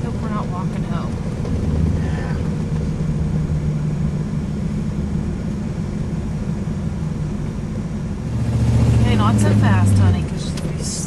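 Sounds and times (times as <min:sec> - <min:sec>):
road noise: 0:00.0 - 0:11.0
vehicle engine drone: 0:00.0 - 0:11.0.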